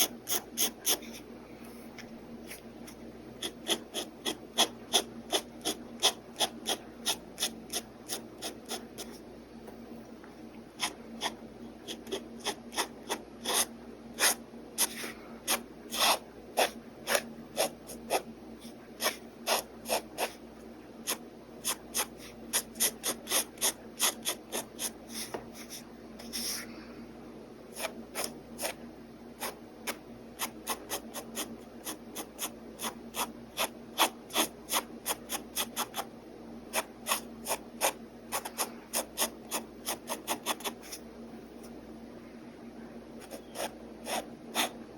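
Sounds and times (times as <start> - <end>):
pen scratching on paper: 0.0 - 1.2, 3.4 - 9.2, 10.8 - 20.4, 21.0 - 26.6, 27.7 - 28.8, 29.4 - 36.1, 36.7 - 41.0, 43.2 - 44.8.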